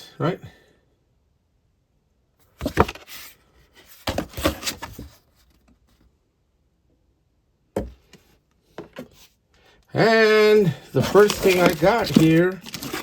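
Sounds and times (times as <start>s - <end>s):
packaging rustling and scraping: 2.6s - 5.6s, 10.6s - 13.0s.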